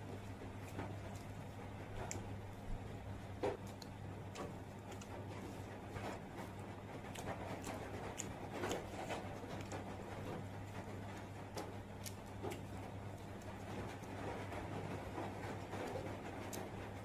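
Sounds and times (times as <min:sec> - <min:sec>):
eating clicks and smacks: 0:03.5 - 0:05.3, 0:05.9 - 0:16.8.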